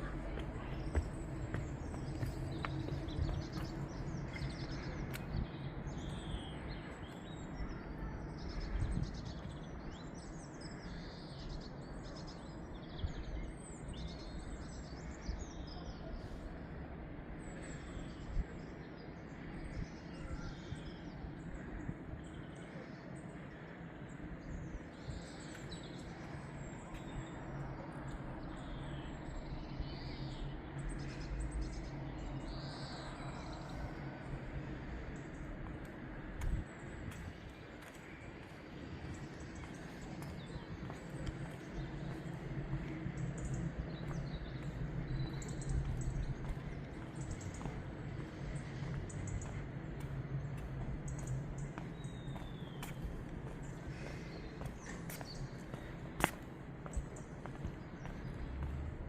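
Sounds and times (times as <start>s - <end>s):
steady low hum: 16.0s - 59.0s
small birds chirping: 17.3s - 59.0s.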